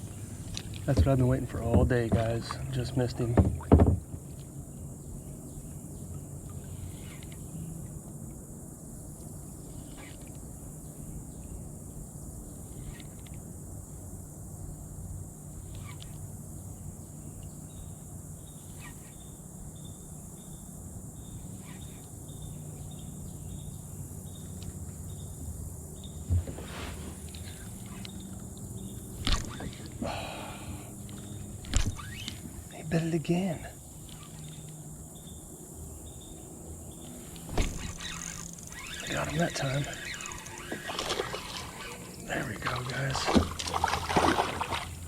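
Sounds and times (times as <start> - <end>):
knock or splash: 0.9 - 4.1, 43.1 - 45.0.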